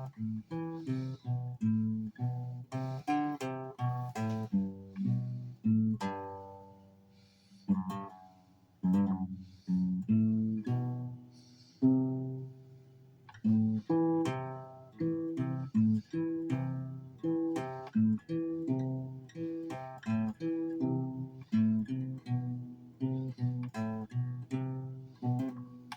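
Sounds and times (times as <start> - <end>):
guitar single plucked notes: 0.0 - 6.8.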